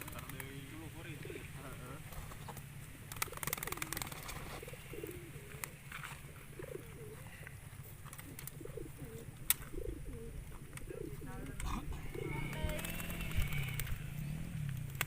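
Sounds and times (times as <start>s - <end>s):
pigeons cooing: 0.0s - 15.0s
sharp clicks: 12.5s - 14.0s.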